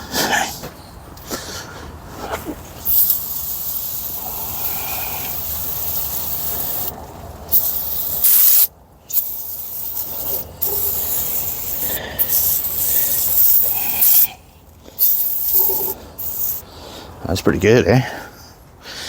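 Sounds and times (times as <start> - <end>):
spray hissing: 2.8 - 14.4, 15.0 - 16.6.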